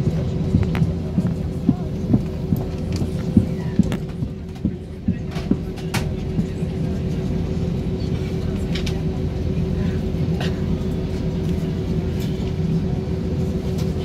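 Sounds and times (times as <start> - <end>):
aircraft cabin engine rumble: 0.0 - 14.0
light clicks in cabin: 0.5 - 7.2, 8.7 - 9.1.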